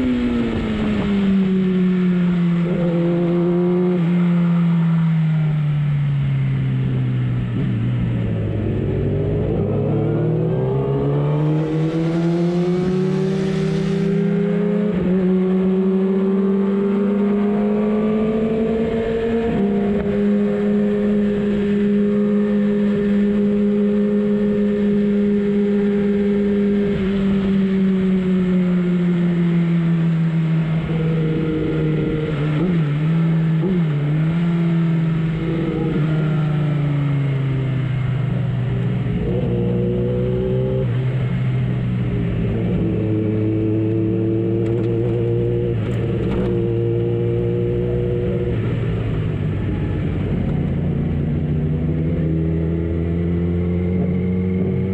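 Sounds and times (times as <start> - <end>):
wind rush: 10.8 - 15.8
motorbike engine revving: 39.0 - 54.9.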